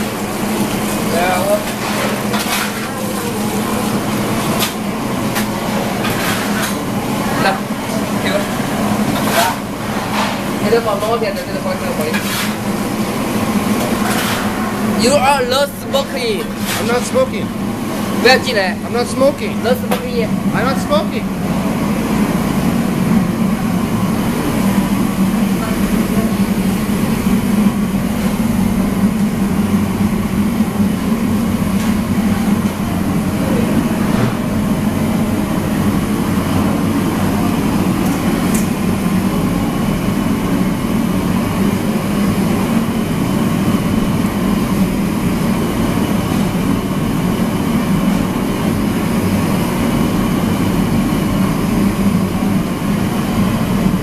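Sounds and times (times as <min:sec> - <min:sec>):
kitchen equipment drone: 0:00.0 - 0:54.0.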